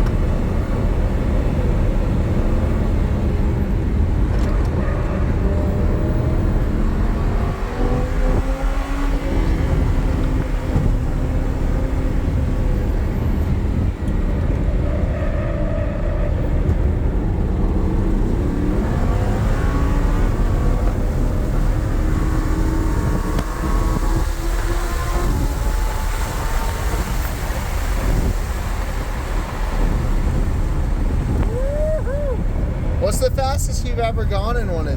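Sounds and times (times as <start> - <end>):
sports car engine revving: 0.0 - 31.5.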